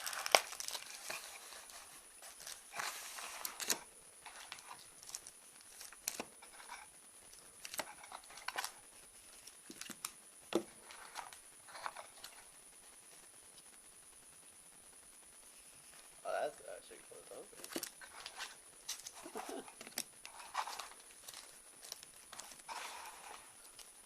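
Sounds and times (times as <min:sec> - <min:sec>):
packaging crinkling and tearing: 0:00.0 - 0:08.8, 0:09.4 - 0:10.2, 0:17.5 - 0:24.0.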